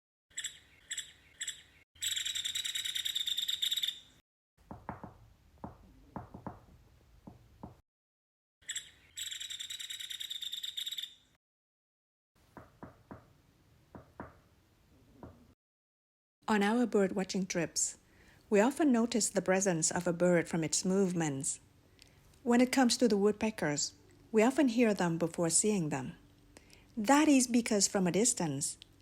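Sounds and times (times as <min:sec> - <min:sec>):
woodpecker calling and rattling: 0:00.3 - 0:06.8, 0:08.6 - 0:11.4
woodpecker tapping: 0:00.4 - 0:04.0, 0:04.6 - 0:07.8, 0:08.7 - 0:11.1, 0:12.5 - 0:13.3.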